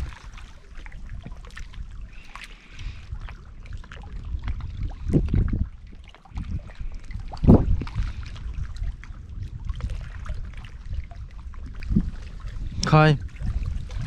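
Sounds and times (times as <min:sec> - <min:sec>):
water sloshing and trickling: 0:00.0 - 0:14.0
low rumble: 0:04.0 - 0:14.0.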